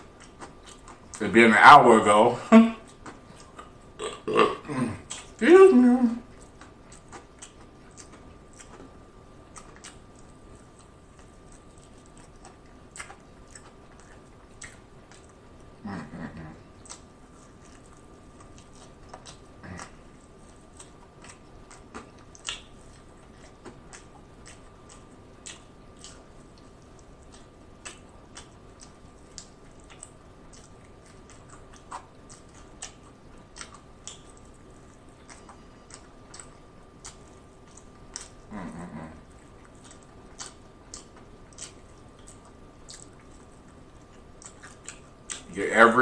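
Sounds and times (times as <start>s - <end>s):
close chewing of fried food: 0.0s - 5.4s, 6.2s - 46.0s
wet mouth clicks and smacks: 16.8s - 38.4s, 39.4s - 45.5s.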